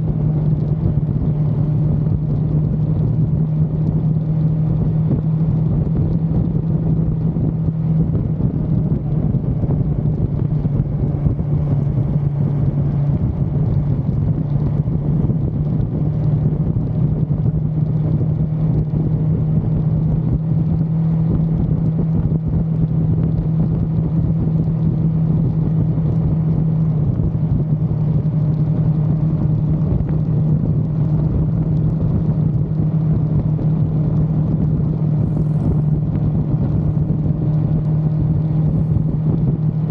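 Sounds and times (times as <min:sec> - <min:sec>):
motorcycle engine running steadily: 0:00.0 - 0:39.9
wind and road noise: 0:00.0 - 0:39.9.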